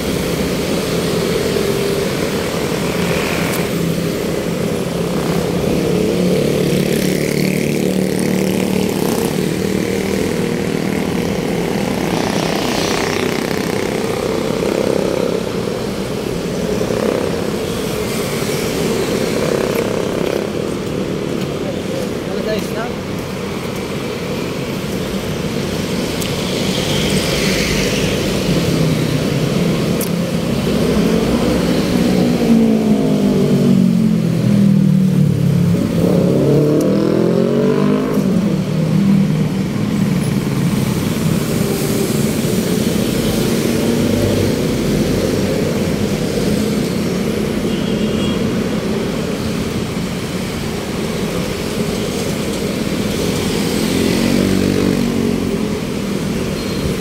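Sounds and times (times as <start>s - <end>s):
road traffic noise: 0.0s - 57.0s.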